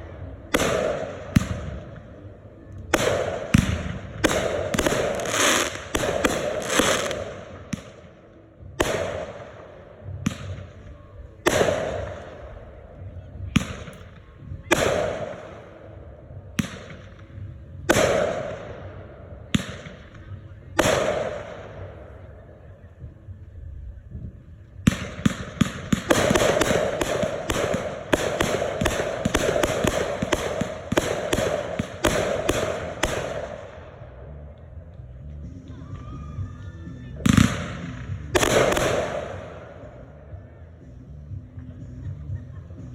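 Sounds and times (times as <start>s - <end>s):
fireworks bangs: 2.9s - 8.0s, 24.8s - 33.8s, 37.2s - 39.7s.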